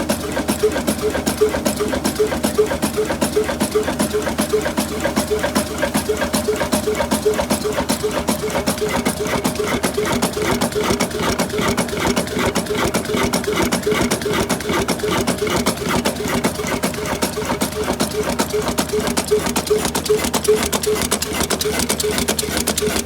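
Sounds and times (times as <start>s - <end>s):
diesel engine knocking: 0.0s - 23.0s.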